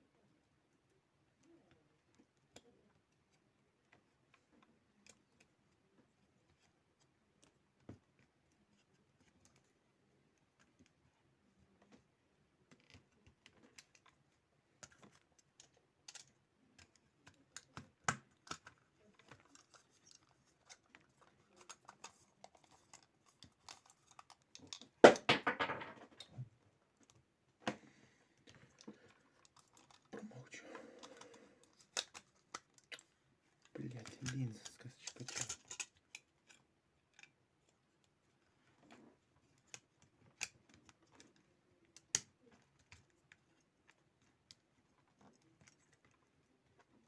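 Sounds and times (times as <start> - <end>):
plastic mouse parts clicking: 12.7 - 25.1, 28.5 - 30.1, 31.0 - 33.1, 33.7 - 38.2
plastic clatter: 14.8 - 26.5, 33.8 - 37.3.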